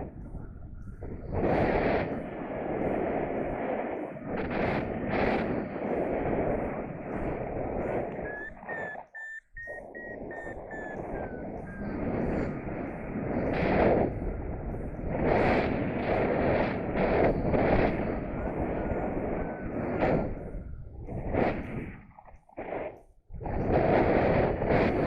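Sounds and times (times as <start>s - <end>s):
wind buffeting microphone: 0.0s - 25.0s
faint short beeps: 8.2s - 12.0s.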